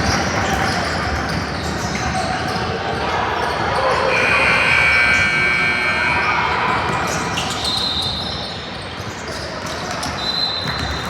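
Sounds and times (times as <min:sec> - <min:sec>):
spectators talking: 0:02.9 - 0:08.8.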